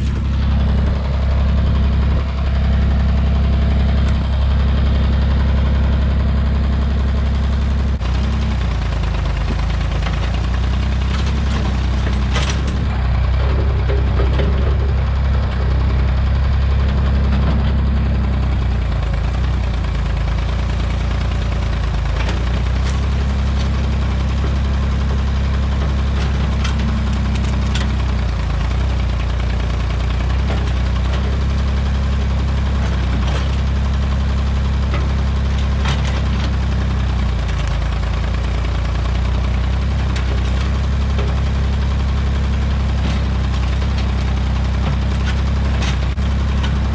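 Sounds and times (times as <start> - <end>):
backhoe engine running: 0.0 - 46.9.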